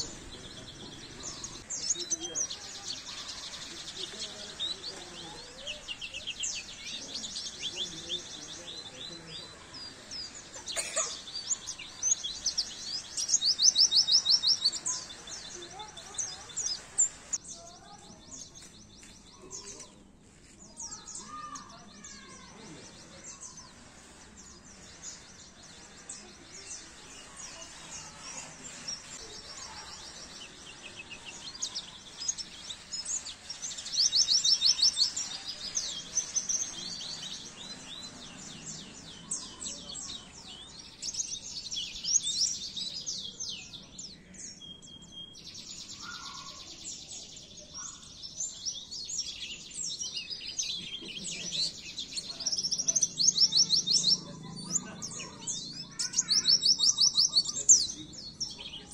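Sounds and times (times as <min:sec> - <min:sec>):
bird twittering trills: 0:20.8 - 0:58.9.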